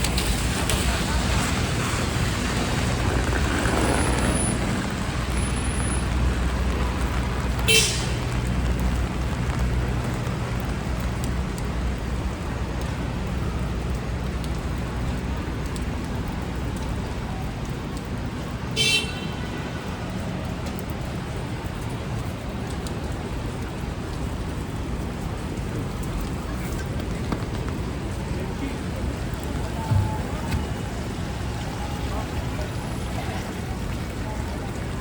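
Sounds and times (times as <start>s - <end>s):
engine rumbling low: 0.0s - 18.7s
city street traffic: 0.0s - 35.0s
car horn beeps: 7.7s - 8.2s, 18.8s - 19.4s.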